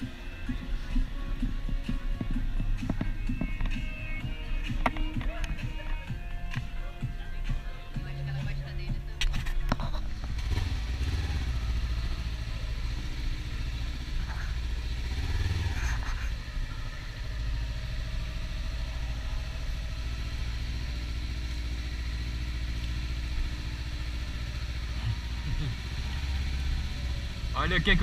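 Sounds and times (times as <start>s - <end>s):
motorcycle engine rumbling: 0.0s - 28.0s.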